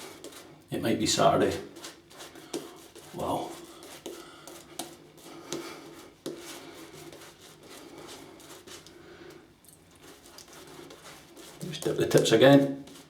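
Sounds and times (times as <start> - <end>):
shaving brush swishing lather: 1.2 - 8.9, 9.9 - 13.0.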